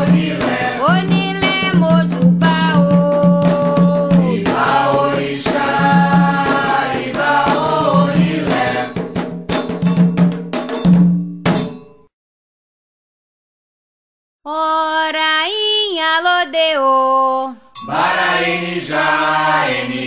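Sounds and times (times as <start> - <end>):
voices singing a chant: 0.0 - 9.0, 17.8 - 20.0
drums and percussion: 0.0 - 12.1, 17.8 - 20.0.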